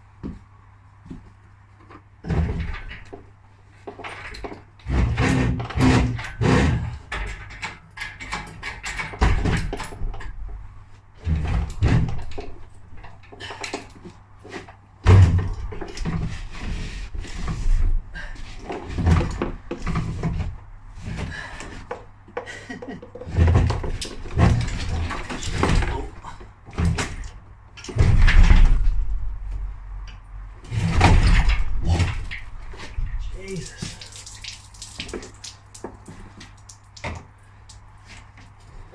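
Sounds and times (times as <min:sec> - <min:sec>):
metal clanks and knocks: 0:02.2 - 0:17.9, 0:18.5 - 0:33.3.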